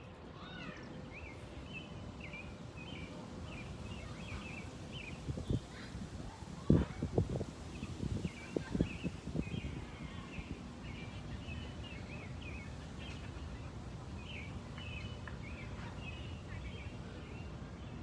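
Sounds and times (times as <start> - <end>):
small birds chirping: 0.4 - 18.0.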